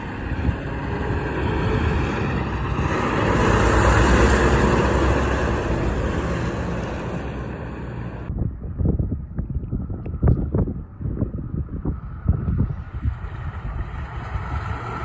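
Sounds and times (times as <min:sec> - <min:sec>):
truck passing by: 0:00.0 - 0:08.3, 0:12.0 - 0:15.0.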